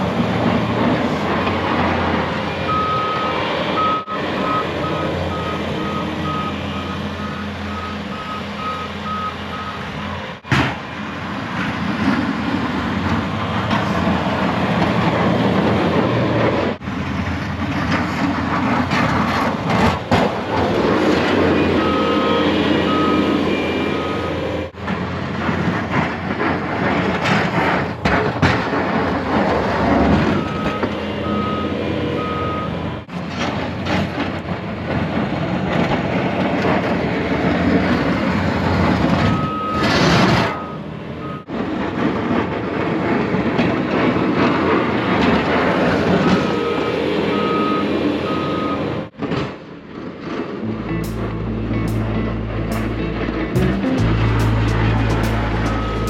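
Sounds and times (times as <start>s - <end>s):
vehicle engine: 0.0s - 56.0s
vehicle backup alarm beeping: 2.5s - 10.0s, 21.1s - 24.7s, 30.3s - 33.0s, 39.2s - 41.6s, 46.2s - 49.1s, 50.9s - 56.0s.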